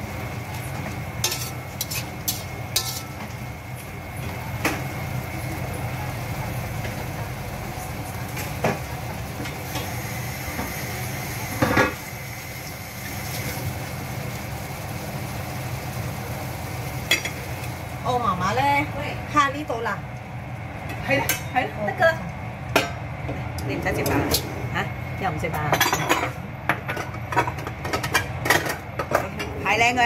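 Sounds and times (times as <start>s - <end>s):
shrimp sizzling in a pan: 0.0s - 19.7s
metal utensil clinking on pan: 1.2s - 3.1s.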